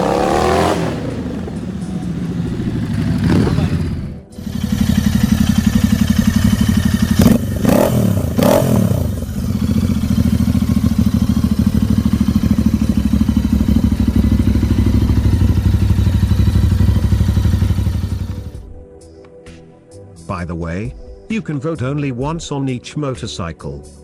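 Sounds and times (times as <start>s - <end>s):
motorcycle engine idling and revving: 0.0s - 18.7s.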